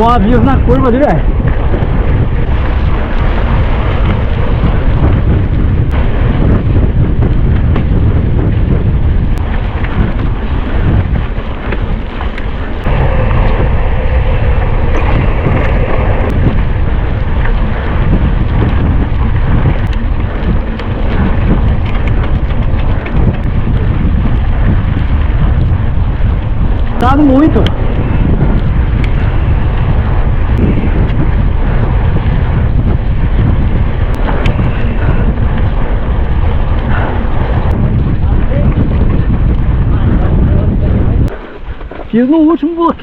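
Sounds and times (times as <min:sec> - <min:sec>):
wind buffeting microphone: 0:00.0 - 0:43.0
bike knocks and rattles: 0:14.6 - 0:27.0.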